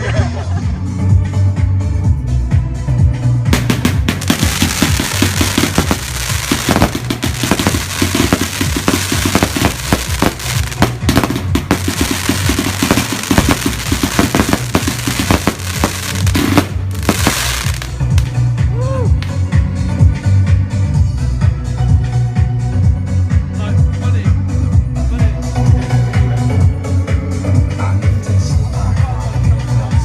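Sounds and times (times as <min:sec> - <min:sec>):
fireworks bursting and crackling: 0:03.6 - 0:18.4.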